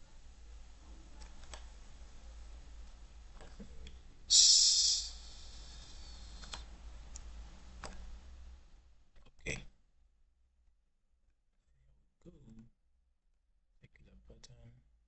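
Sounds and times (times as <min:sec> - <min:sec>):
low steady hum: 0:00.0 - 0:09.7
computer mouse clicks: 0:01.2 - 0:01.7, 0:05.8 - 0:08.0
high-pitched hiss: 0:04.3 - 0:06.7.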